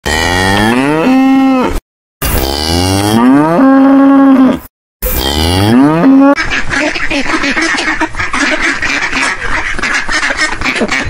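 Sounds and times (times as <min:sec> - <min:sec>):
cow mooing: 0:00.0 - 0:01.8, 0:02.4 - 0:06.4.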